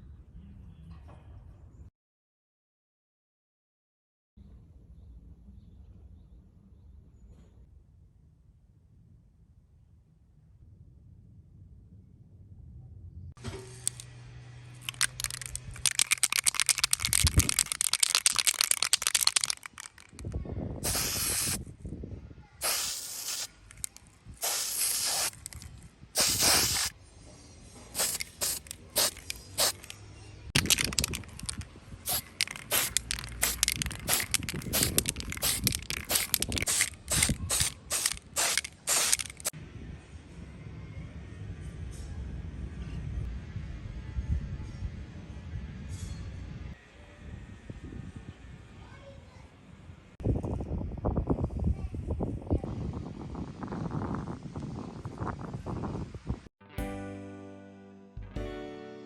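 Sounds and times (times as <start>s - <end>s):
aerosol spray paint spraying: 14.8s - 20.0s, 20.8s - 21.6s, 22.6s - 26.9s, 28.0s - 29.9s, 30.6s - 39.5s.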